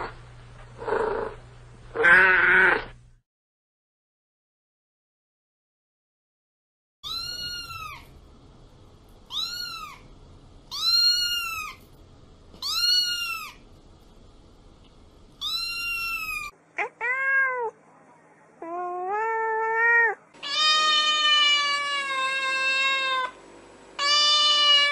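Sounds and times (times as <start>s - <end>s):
cat meowing: 2.0s - 2.8s, 7.0s - 8.1s, 9.3s - 10.1s, 10.7s - 11.8s, 12.6s - 13.6s, 15.4s - 17.8s, 18.6s - 23.3s, 24.0s - 24.9s.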